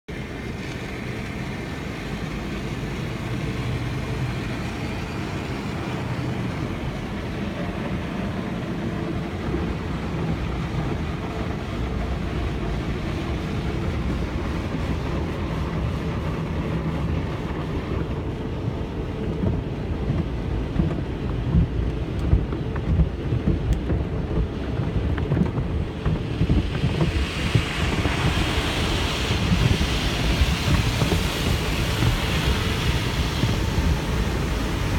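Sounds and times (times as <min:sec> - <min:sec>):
car wash machinery rumbling: 0:00.1 - 0:34.9
water spray hiss: 0:26.6 - 0:34.9.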